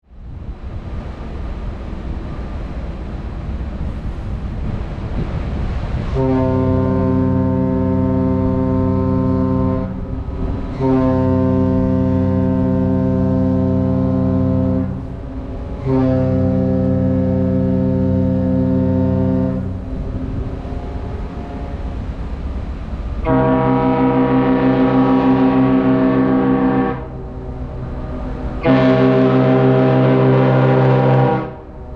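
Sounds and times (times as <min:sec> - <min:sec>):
wind noise: 0:00.2 - 0:16.0, 0:16.8 - 0:23.2
ship's horn blasts: 0:00.2 - 0:31.9
second ship horn: 0:05.8 - 0:31.9.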